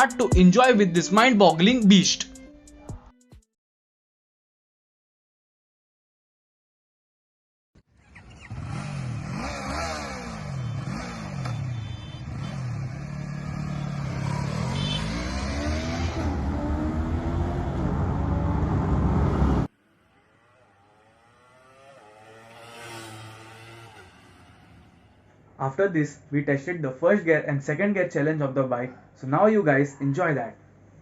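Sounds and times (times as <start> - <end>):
motorcycle engine revving: 8.0 - 25.3
faint engine rising in pitch: 8.0 - 25.4.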